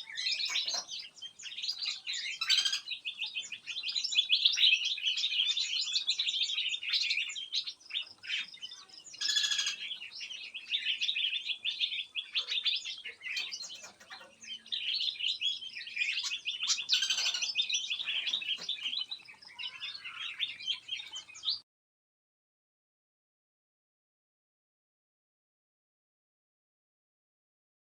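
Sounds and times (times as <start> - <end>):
harsh bird calls: 0.0 - 21.6
songbirds chirping and twittering: 0.0 - 21.7.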